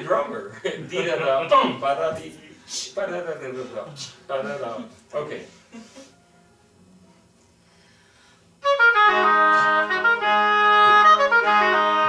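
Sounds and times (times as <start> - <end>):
lower held note: 8.6 - 12.0
oboe playing sustained notes: 8.6 - 12.0.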